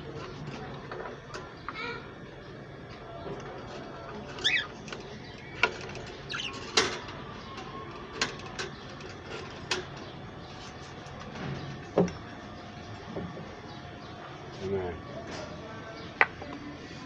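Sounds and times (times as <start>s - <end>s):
clicks and knocks from wire cages: 2.9s - 12.3s
budgerigars chirping: 6.2s - 6.6s.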